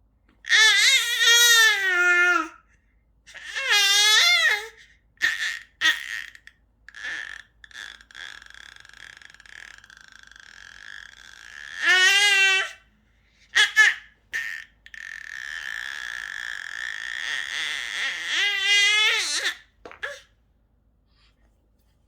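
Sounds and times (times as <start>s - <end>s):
baby squealing: 0.5s - 2.5s, 3.4s - 12.8s, 13.6s - 20.3s
baby strained sound: 13.6s - 20.3s.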